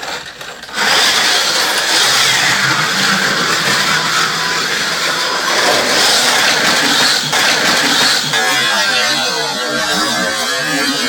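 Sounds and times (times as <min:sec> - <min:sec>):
slot cars whirring on track: 0:00.6 - 0:09.2.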